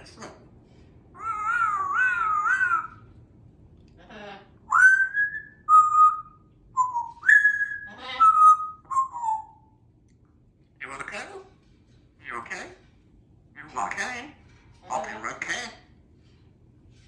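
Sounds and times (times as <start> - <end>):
parrot raspy call: 1.2 - 3.0
parrot whistling: 1.2 - 3.0, 4.7 - 9.7.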